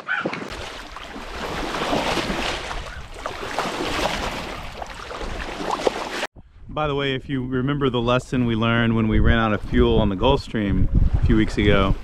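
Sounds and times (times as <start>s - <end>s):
water washing along hull: 0.1s - 6.3s
wind buffeting microphone: 6.4s - 12.0s.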